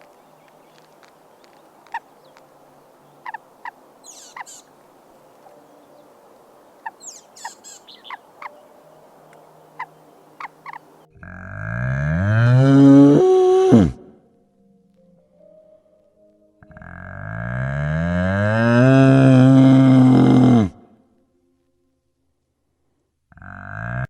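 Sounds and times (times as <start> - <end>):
small animals chirping: 0.0 - 11.4
cow mooing: 10.6 - 14.1, 16.6 - 20.8, 23.3 - 24.0.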